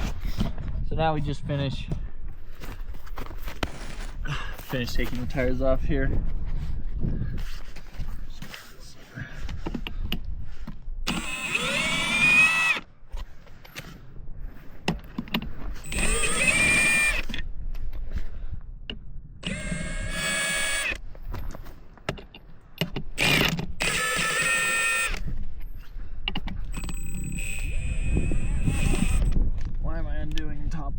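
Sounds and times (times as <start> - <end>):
power tool motor whine: 11.1 - 12.9, 15.8 - 17.4, 19.4 - 21.0, 23.2 - 25.4, 26.7 - 29.4.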